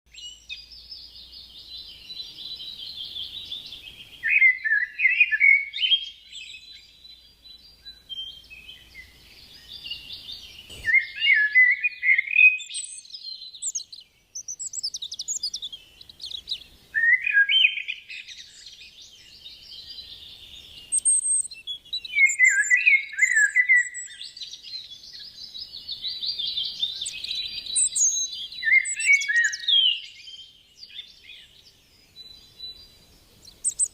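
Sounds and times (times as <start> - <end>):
birds chirping and calling: 0.1 - 33.9
rapid bird chattering: 33.4 - 33.9.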